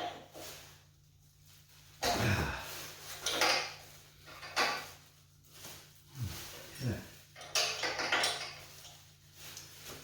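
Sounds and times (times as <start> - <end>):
metal hardware clattering: 7.4 - 8.6.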